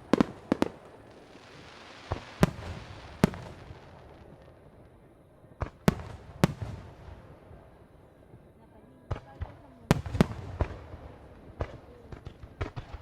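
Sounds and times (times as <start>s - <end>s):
fireworks hiss: 0.0s - 4.6s
fireworks bursting with echo: 0.0s - 13.0s.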